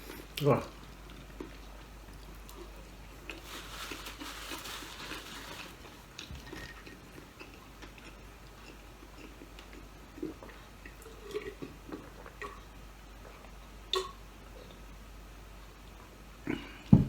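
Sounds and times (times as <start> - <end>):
crackly eating sounds: 0.0 - 15.0.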